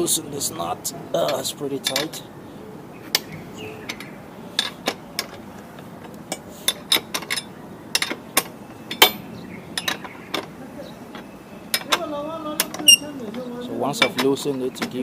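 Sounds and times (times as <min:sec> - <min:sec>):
spanner clicking on axle nut: 0:03.1 - 0:15.0.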